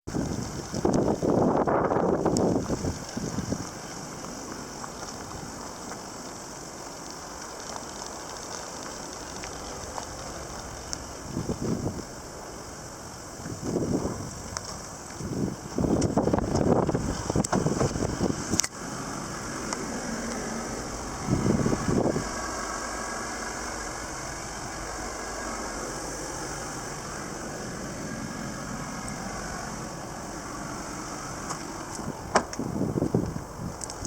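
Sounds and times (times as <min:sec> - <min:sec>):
small engine idling: 0:00.1 - 0:34.0.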